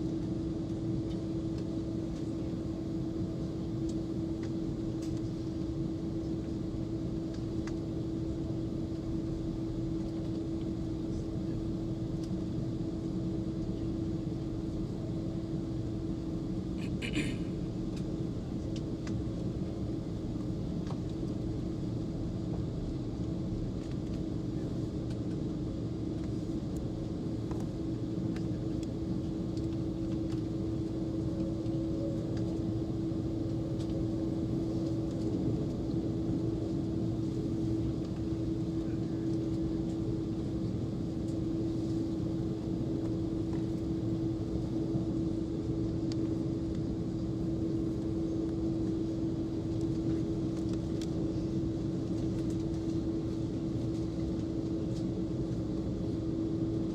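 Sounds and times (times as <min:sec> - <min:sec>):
airplane cabin engine hum: 0:00.0 - 0:56.9.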